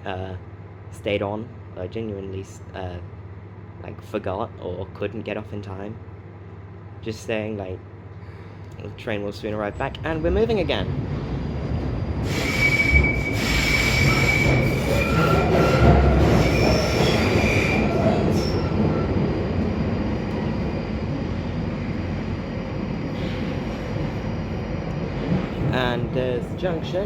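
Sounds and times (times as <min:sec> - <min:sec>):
train wheels rumbling on rail: 0:09.5 - 0:27.0
high-pitched wheel squeal: 0:12.2 - 0:19.2.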